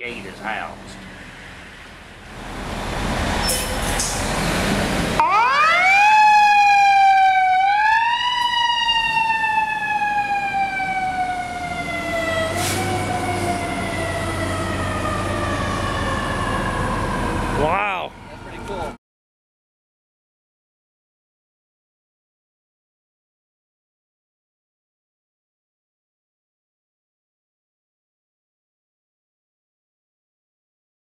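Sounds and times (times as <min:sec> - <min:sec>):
engine rumble: 0:00.0 - 0:06.0, 0:07.9 - 0:19.0
rushing noise: 0:01.0 - 0:05.2
fire engine siren wailing: 0:04.4 - 0:19.0.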